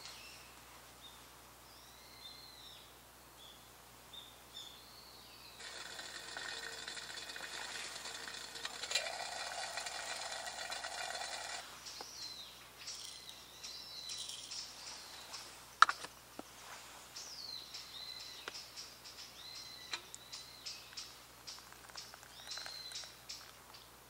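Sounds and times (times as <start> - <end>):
small ticks: 5.6 - 12.1, 19.9 - 23.8
birds chirping and whistling: 11.2 - 15.6, 17.2 - 23.9.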